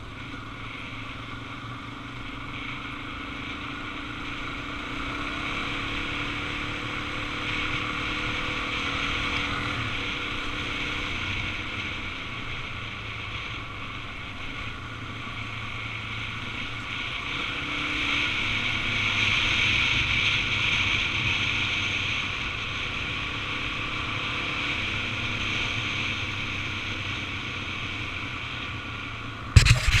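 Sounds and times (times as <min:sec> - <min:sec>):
motorcycle engine running: 0:00.0 - 0:30.0
wind rush on microphone: 0:29.6 - 0:30.0.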